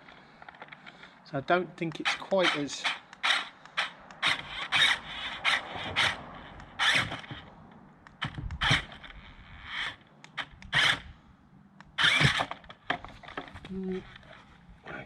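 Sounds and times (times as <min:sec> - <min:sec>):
wheels scraping and knocking: 0:02.2 - 0:11.1, 0:12.0 - 0:15.0
small electric motors whining: 0:03.0 - 0:07.4, 0:12.0 - 0:12.6.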